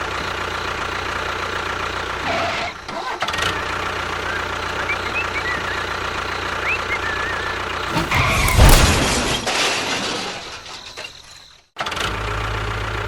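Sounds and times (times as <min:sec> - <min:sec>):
loud noisy crash: 0:07.9 - 0:11.5.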